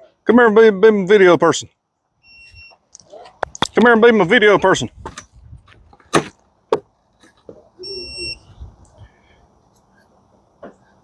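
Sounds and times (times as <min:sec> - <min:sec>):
faint short beeps: 0:07.8 - 0:08.5
high electronic beep: 0:07.8 - 0:08.5.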